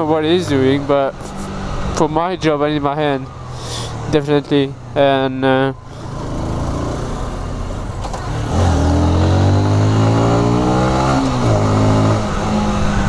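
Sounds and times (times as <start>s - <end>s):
motorcycle engine pulling under throttle: 5.9s - 13.0s
wind rushing over microphone: 10.5s - 13.0s.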